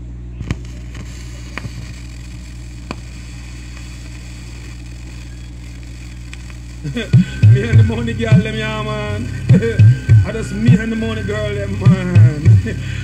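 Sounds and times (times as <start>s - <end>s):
electrical hum and hiss: 0.0s - 13.0s
faint clicks: 5.1s - 6.8s.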